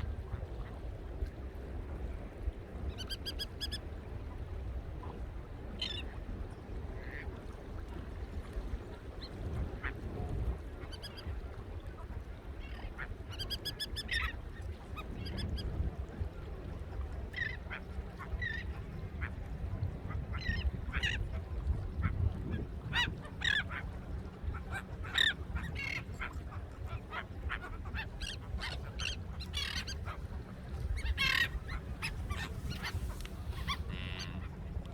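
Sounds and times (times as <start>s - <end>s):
flock of birds calling: 24.6s - 34.5s.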